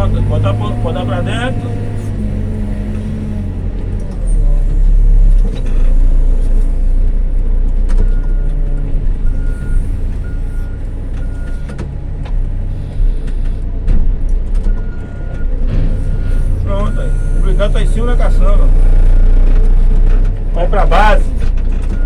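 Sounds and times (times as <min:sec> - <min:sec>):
diesel engine under hydraulic load: 0:00.0 - 0:22.0
backup alarm beeping: 0:09.2 - 0:11.8, 0:14.7 - 0:19.4.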